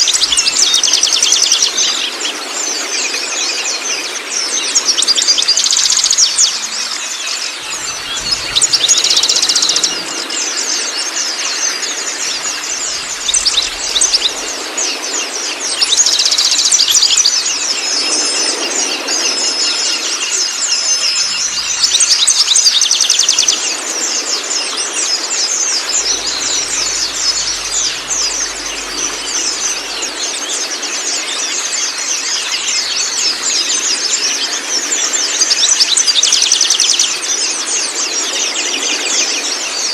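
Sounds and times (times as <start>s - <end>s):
flowing water rushing: 0.0s - 39.9s
songbirds chirping and trilling: 0.0s - 39.9s.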